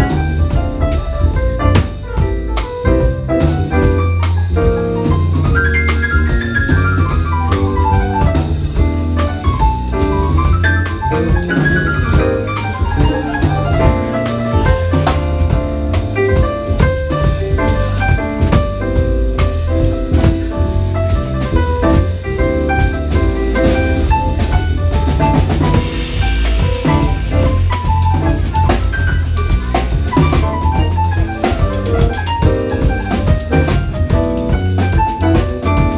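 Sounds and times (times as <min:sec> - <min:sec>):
bass line: 0:00.0 - 0:35.9
piano runs: 0:00.0 - 0:35.9
drum kit cymbal strokes: 0:19.8 - 0:34.9.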